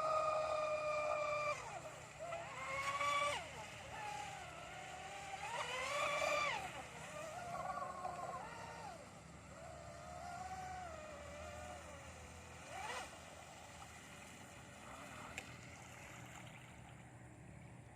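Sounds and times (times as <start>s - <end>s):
electric motors whining: 0.0s - 15.6s.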